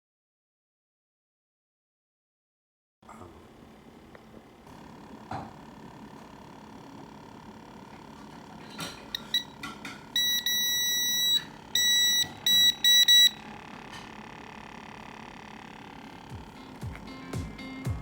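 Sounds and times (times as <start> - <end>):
electronic beeping: 9.1 - 9.6, 10.2 - 13.5.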